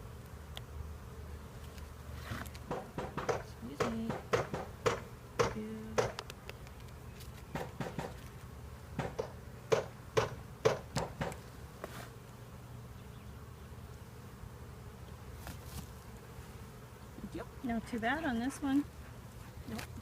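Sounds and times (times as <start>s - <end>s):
honeybees buzzing: 0.0s - 20.0s
sharp clicks and knocks: 2.6s - 6.9s, 9.0s - 11.4s.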